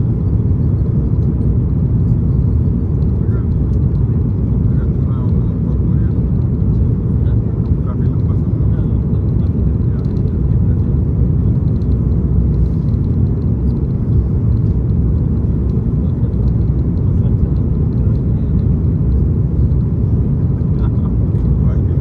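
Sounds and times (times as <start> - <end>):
cabin airflow noise: 0.0 - 22.0
jet engine rumble: 0.0 - 22.0.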